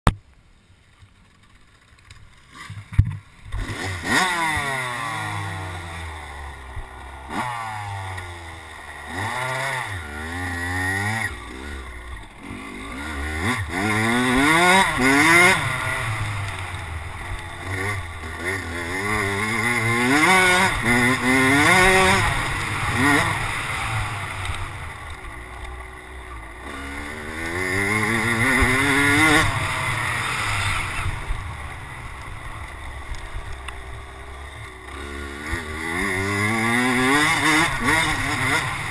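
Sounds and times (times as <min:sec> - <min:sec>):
dirt bike engine revving: 0:02.4 - 0:38.9.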